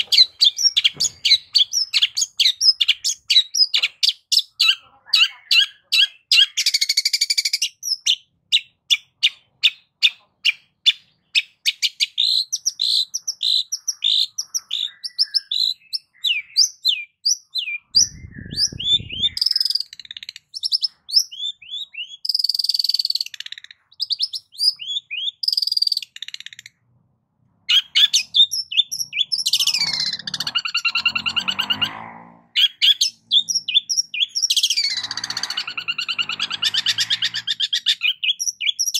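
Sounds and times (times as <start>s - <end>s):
bird singing mimicking song: 0.0s - 26.8s, 27.6s - 32.0s, 32.6s - 38.9s
harsh scratchy bird calls: 0.0s - 26.9s, 27.5s - 38.9s.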